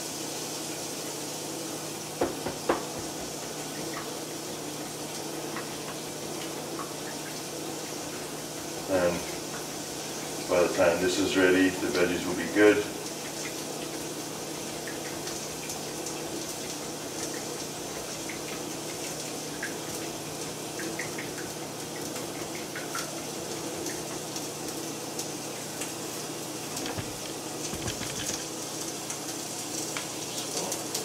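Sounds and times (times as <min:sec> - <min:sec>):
vegetables sizzling in oil: 0:00.0 - 0:10.6
low thuds: 0:26.8 - 0:28.4.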